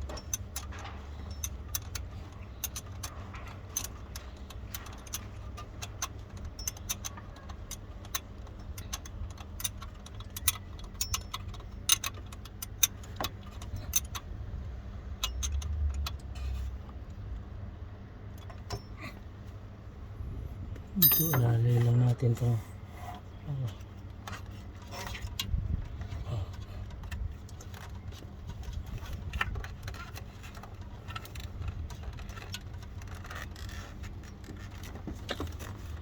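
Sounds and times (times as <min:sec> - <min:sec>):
metallic clinks of hand tools: 0:21.0 - 0:21.6.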